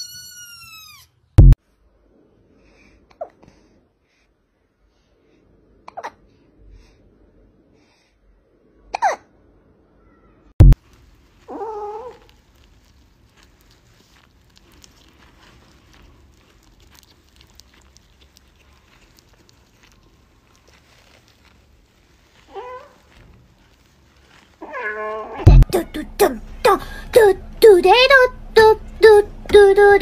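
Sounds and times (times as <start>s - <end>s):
faint rustling and ticks: 10.8s - 25.4s.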